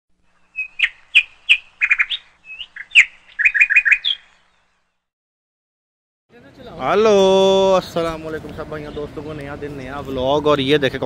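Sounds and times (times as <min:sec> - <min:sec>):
bird chirping and whistling: 0:00.4 - 0:04.6.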